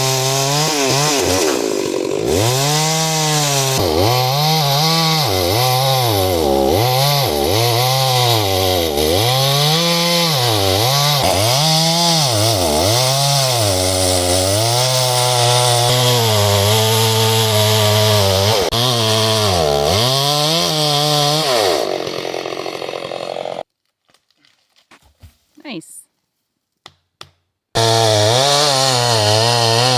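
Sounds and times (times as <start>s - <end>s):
chainsaw cutting wood: 0.0s - 23.7s, 27.8s - 29.9s.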